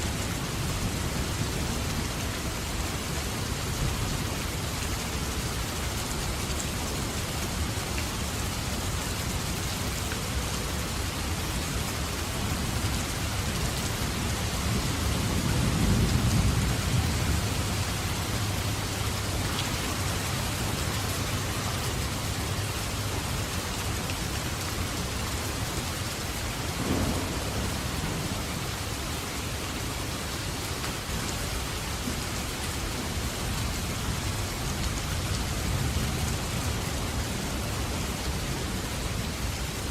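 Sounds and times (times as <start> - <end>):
steady rain: 0.0 - 39.9
thunder rumbling: 26.6 - 29.6.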